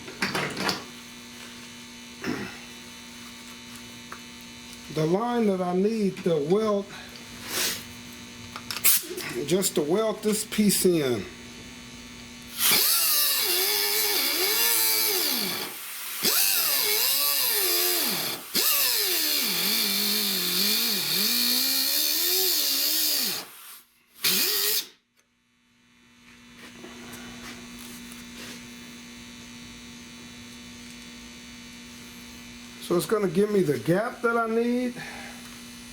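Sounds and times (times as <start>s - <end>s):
steady electrical hum: 0.0s - 22.4s, 23.2s - 35.9s
power tool cutting sheet steel: 12.5s - 24.9s.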